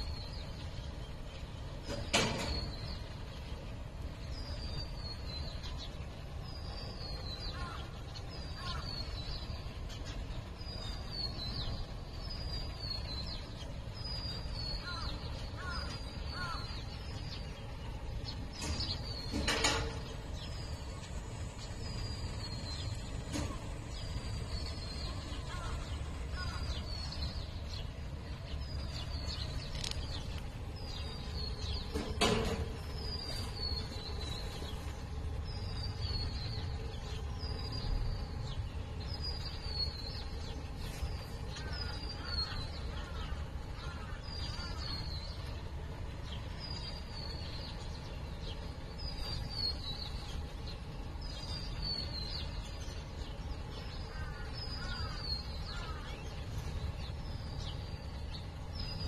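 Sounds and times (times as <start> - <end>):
low background rumble: 0.0 - 59.0
small bird chirping: 4.4 - 43.3.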